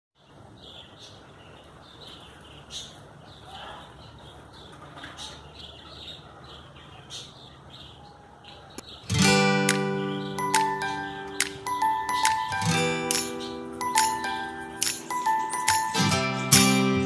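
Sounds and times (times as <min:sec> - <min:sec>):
birds chirping: 0:00.2 - 0:17.0
sharp clicks: 0:09.6 - 0:16.0.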